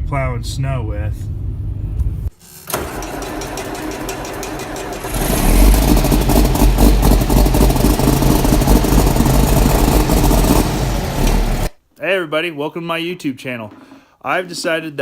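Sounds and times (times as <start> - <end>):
tractor diesel engine revving: 2.7 - 11.8.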